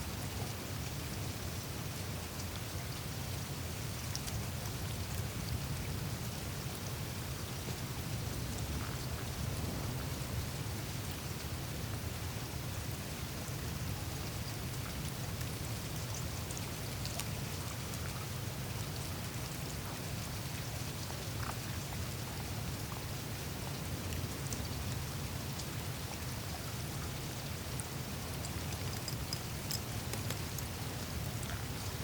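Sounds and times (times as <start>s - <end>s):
meltwater trickling and dripping: 0.1s - 32.0s
ice clicks and ticks: 28.3s - 31.7s.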